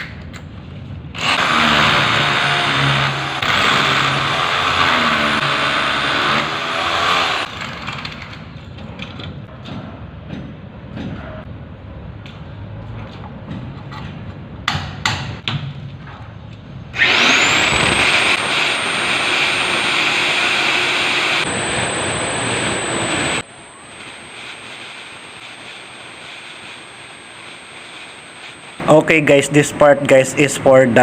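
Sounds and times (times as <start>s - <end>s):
electric core drill whining: 1.2s - 7.5s, 17.0s - 28.8s.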